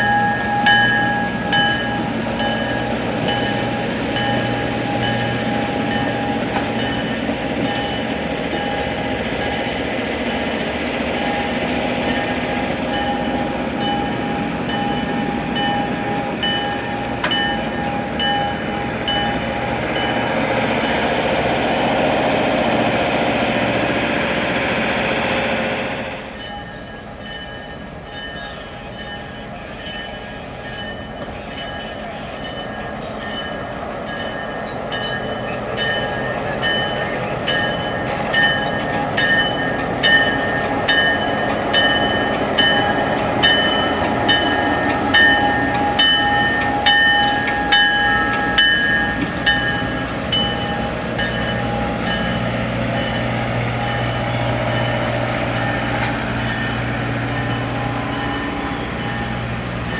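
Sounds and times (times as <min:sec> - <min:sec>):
train wheels squealing on rails: 0:00.0 - 0:21.3, 0:25.2 - 0:59.9
rumble of rolling train cars: 0:00.0 - 0:59.9.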